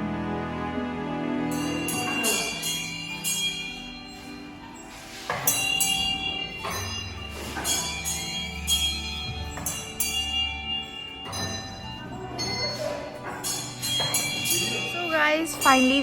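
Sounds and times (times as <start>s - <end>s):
metal bells ringing: 1.5s - 16.0s.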